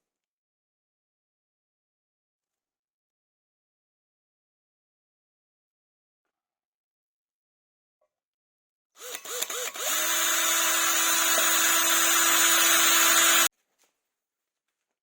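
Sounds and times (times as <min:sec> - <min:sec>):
electric drill motor running: 0:09.0 - 0:13.5.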